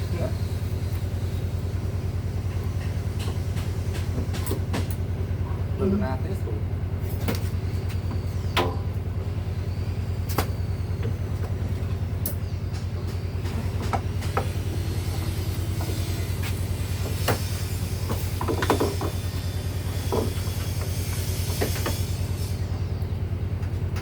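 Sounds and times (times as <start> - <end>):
low machine hum with fast pulse: 0.0 - 24.0.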